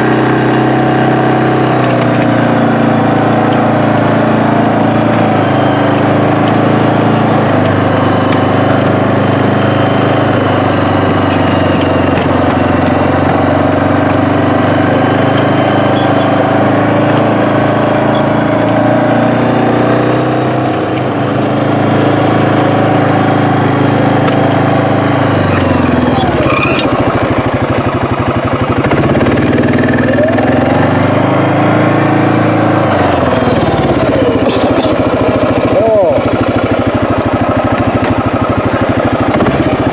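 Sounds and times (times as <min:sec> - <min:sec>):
engine running close by: 0:00.0 - 0:39.9.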